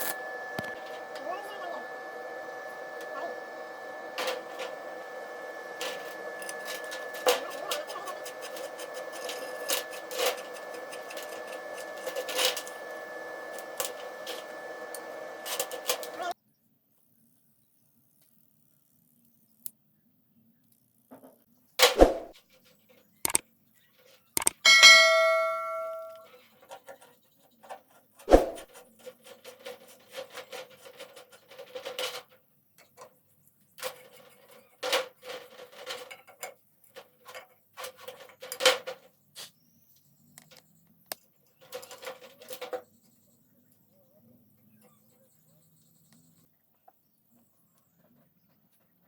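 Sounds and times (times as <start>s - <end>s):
clanks and rattles: 5.8s - 13.0s, 24.0s - 33.2s, 33.8s - 39.1s, 41.5s - 42.9s
metal strike ringing: 24.7s - 26.3s.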